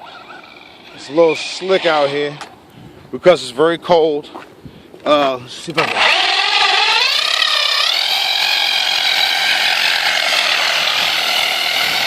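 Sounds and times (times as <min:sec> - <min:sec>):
electric motor whining: 0:00.0 - 0:02.5, 0:05.7 - 0:12.0.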